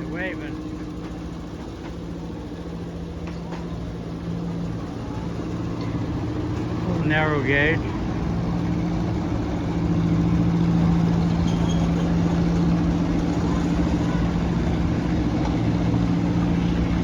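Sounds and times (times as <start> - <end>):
small train engine humming: 0.0 - 17.0.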